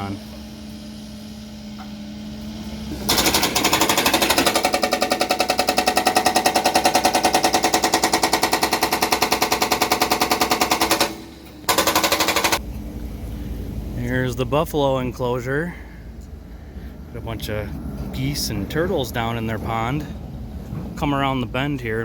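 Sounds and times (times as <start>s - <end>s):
jackhammer hammering: 2.9s - 12.6s.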